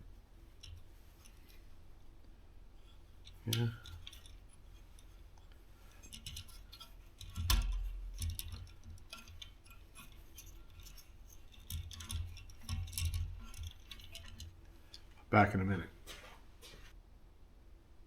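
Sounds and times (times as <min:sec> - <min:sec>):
tools and metal fittings clicking: 0:02.8 - 0:15.3.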